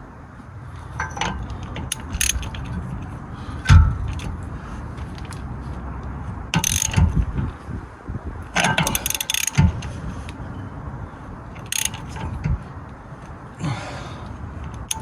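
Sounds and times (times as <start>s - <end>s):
metal parts knocking: 1.0s - 4.3s, 6.6s - 7.2s, 8.6s - 9.9s, 11.6s - 12.7s, 14.8s - 15.0s
ratchet wrench clicking: 1.6s - 2.8s, 6.6s - 7.2s, 8.6s - 9.9s, 11.6s - 12.4s, 14.7s - 15.0s.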